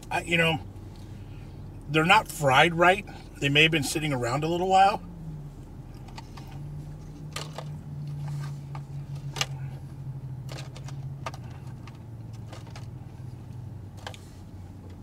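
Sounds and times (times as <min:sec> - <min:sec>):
low hum of car cabin: 0:00.0 - 0:15.0.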